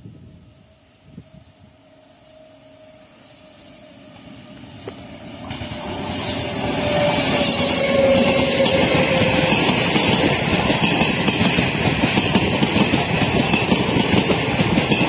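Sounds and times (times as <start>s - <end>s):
train wheels rumbling on rail: 0.0s - 15.0s
locomotive whine: 0.2s - 11.4s.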